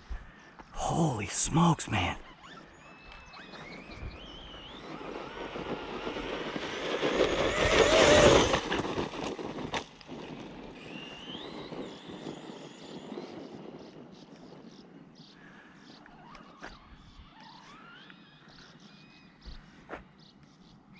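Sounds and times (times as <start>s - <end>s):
electric motor whining: 3.1s - 9.3s
tyres on dirt: 3.6s - 11.4s.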